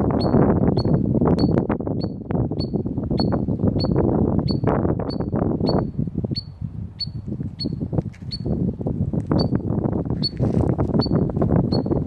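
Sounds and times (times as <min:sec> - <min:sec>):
shorebird peeping: 0:00.2 - 0:08.6, 0:11.0 - 0:12.0.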